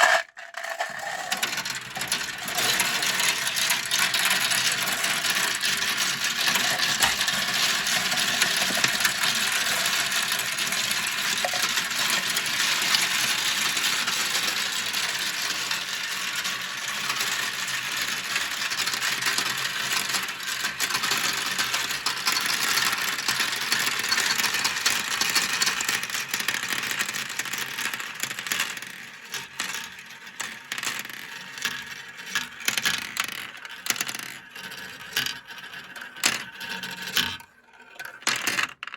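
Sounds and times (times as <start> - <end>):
glass marbles rattling down plastic run: 0.0 - 38.9.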